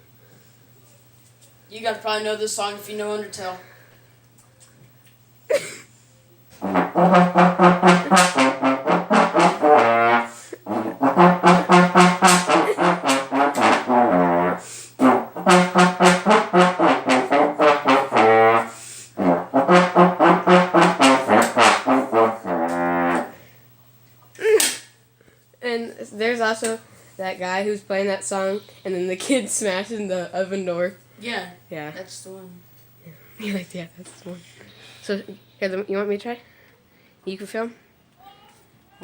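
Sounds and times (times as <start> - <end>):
solo trombone melody: 6.5 - 23.5.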